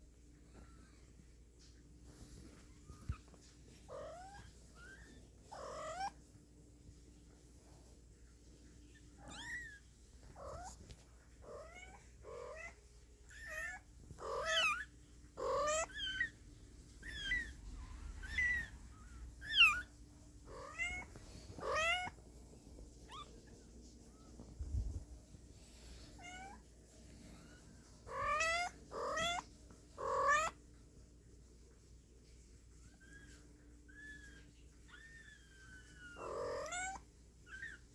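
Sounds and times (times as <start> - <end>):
kittens mewing: 11.4 - 16.4, 20.5 - 22.2, 28.1 - 30.6, 34.9 - 37.8.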